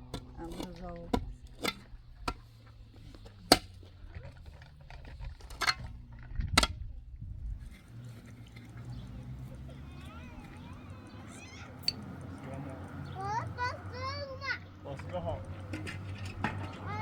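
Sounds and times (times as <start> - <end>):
sharp knocks of hard objects: 0.0 - 2.5, 3.4 - 3.9, 15.6 - 17.0.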